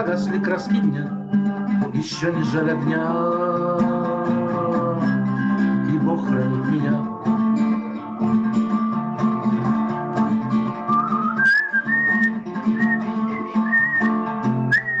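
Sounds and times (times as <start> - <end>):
acoustic guitar strumming: 0.0 - 15.0
person whistling a melody: 0.4 - 5.3, 10.8 - 15.0.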